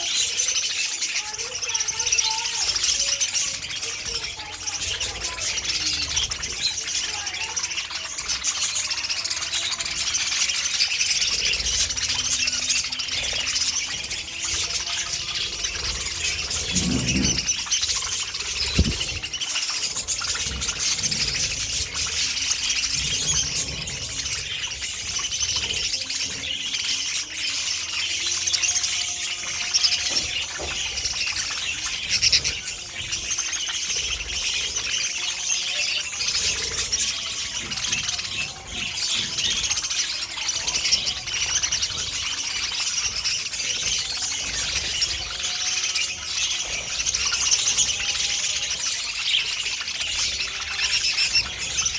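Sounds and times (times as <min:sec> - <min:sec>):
budgerigars chattering and chirping: 0:00.0 - 0:51.9.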